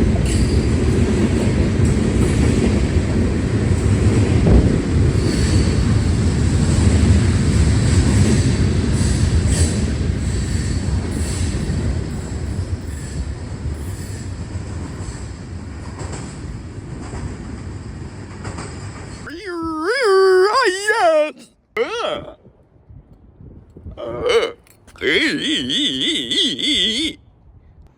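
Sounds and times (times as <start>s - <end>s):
train clanks: 0.0s - 19.2s
wheels squealing on rail: 5.0s - 6.9s, 7.9s - 15.4s.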